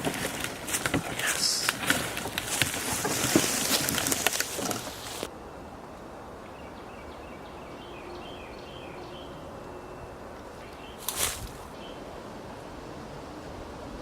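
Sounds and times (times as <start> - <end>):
loud rustling noise: 0.0 - 5.3, 11.0 - 11.7
woodland background hiss: 0.0 - 14.0
faint birdsong: 1.2 - 12.2.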